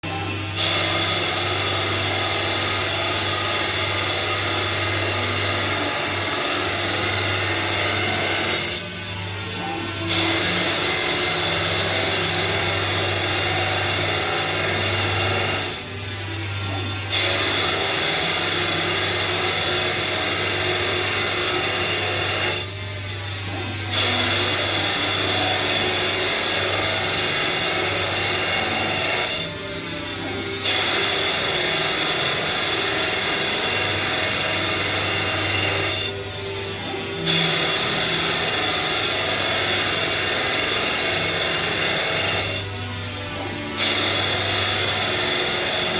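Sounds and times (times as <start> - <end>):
lathe cutting metal: 0.0 - 45.9.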